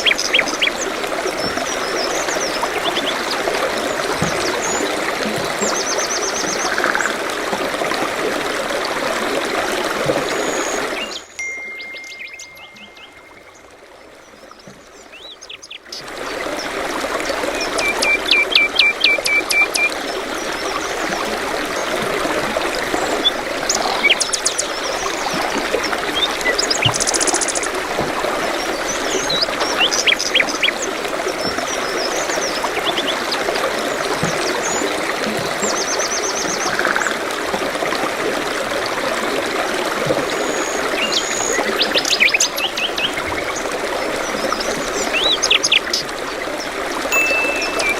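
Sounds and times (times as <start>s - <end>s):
stream water running: 0.0s - 47.9s
small birds chirping: 10.6s - 13.7s.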